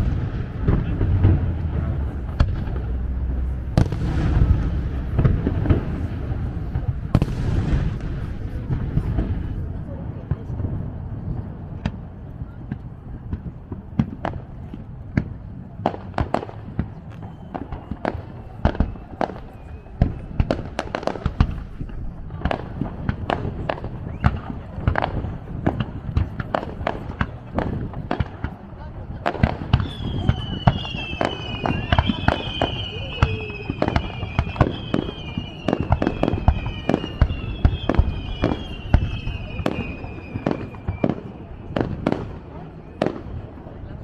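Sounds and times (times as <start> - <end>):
low rumble of booms: 0.0 - 32.7
fireworks bursting with sharp cracks: 0.0 - 44.0.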